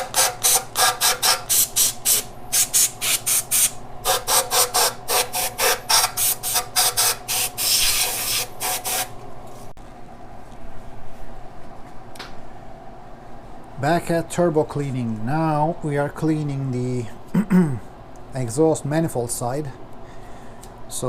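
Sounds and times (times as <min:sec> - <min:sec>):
sandpaper rubbing on metal: 0:00.0 - 0:09.1.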